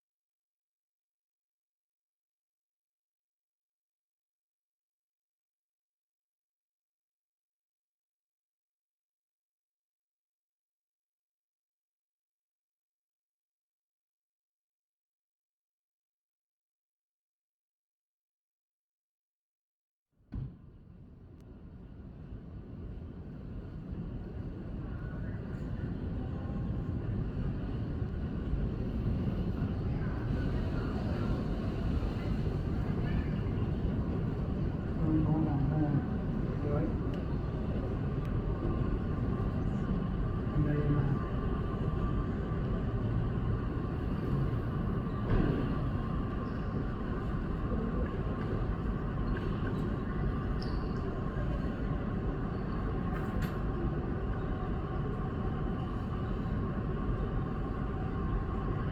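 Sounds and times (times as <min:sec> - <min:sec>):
airplane cabin rumble: 0:20.4 - 0:58.9
faint voices: 0:24.7 - 0:58.9
faint click: 0:53.1 - 0:53.6.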